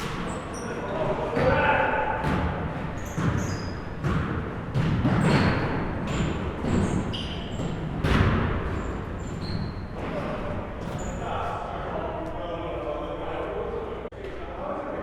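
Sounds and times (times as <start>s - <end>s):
basketballs bouncing on gym floor: 0.0s - 11.2s
sneaker squeaks: 0.0s - 11.6s.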